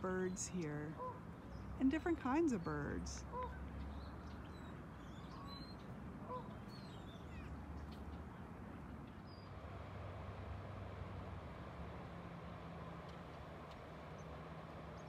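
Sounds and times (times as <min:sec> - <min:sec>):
short low bird calls: 0:03.2 - 0:07.9.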